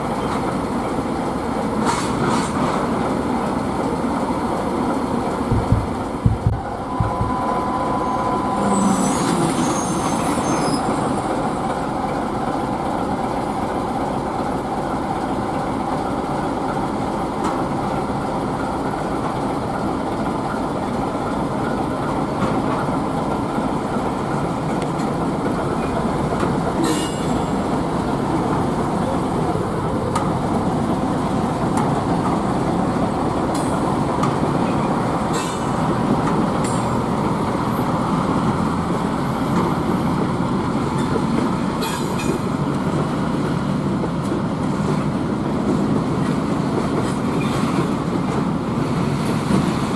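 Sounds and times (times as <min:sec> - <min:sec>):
diesel locomotive rumbling: 0:00.0 - 0:49.9
high squeal: 0:06.8 - 0:11.4.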